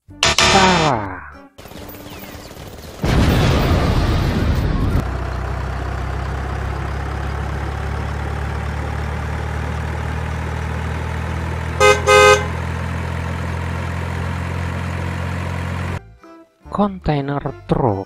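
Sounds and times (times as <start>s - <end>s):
truck horn honks: 0.2s - 1.0s, 11.7s - 12.8s
truck engine idling: 4.8s - 16.0s.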